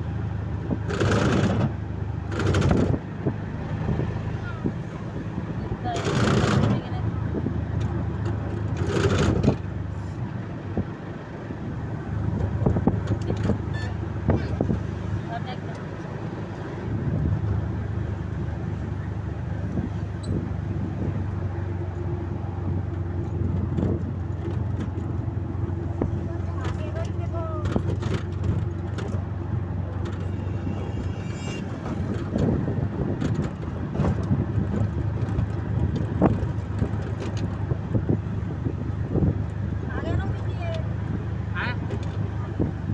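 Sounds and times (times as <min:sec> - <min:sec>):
road noise: 0:00.0 - 0:42.9
vehicle engine running: 0:00.0 - 0:42.9
knocks and rattles: 0:00.7 - 0:03.1, 0:23.6 - 0:38.0.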